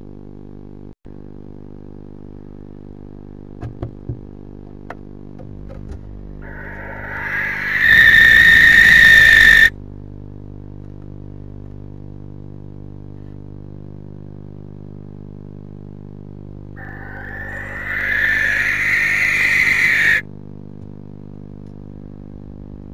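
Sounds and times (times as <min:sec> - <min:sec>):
steady low hum: 0:01.1 - 0:22.9
barn owl screeching: 0:06.4 - 0:09.7, 0:16.8 - 0:20.2.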